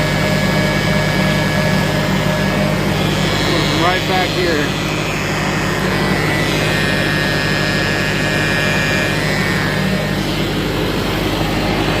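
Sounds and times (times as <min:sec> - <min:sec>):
tractor engine running: 0:00.0 - 0:07.0
high transmission whine: 0:00.0 - 0:12.0.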